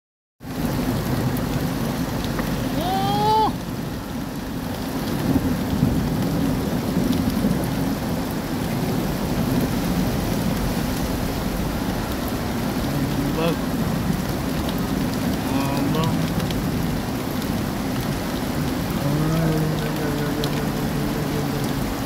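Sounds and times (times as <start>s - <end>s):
heavy rain falling: 0.4s - 22.0s.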